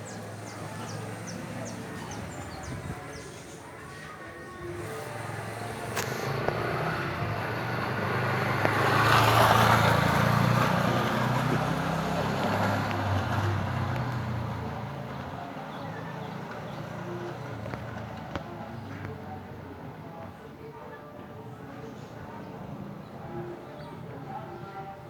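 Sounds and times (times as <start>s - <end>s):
vehicle passing by: 0.0s - 3.0s, 4.6s - 18.4s.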